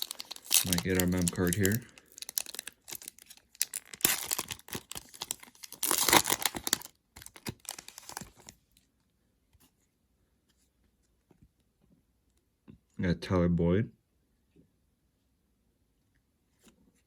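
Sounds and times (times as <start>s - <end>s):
plastic wrapper tearing and crinkling: 0.0s - 8.6s.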